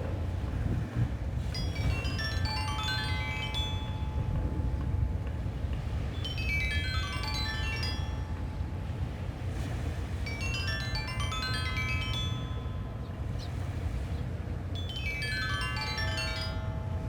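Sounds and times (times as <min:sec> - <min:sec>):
wind on beach: 0:00.0 - 0:17.0
stone lithophone notes ringing: 0:01.6 - 0:09.0, 0:10.3 - 0:13.4, 0:14.7 - 0:17.0.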